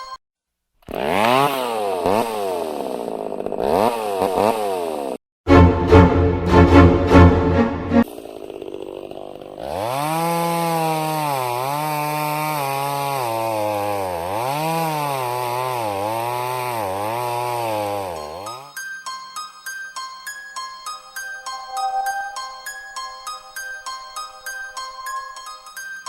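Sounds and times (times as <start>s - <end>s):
chainsaw engine revving: 0.8s - 5.2s, 8.0s - 18.8s
music: 5.5s - 8.0s, 18.8s - 26.0s.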